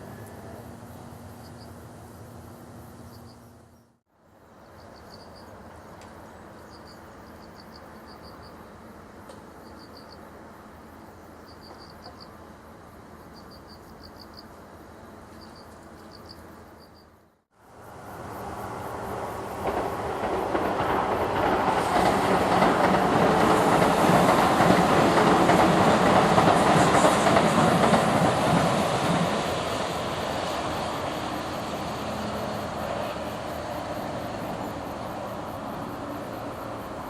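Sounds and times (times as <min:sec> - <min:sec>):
outdoor background hum: 0:00.0 - 0:20.9
insects chirping: 0:00.0 - 0:37.0
train approaching rumble: 0:00.0 - 0:37.0.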